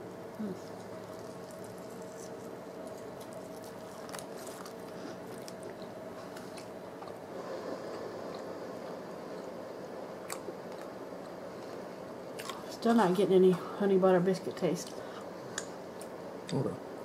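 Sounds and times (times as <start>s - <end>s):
steady low hum: 0.0s - 17.0s
person chewing crispy food: 0.2s - 7.3s.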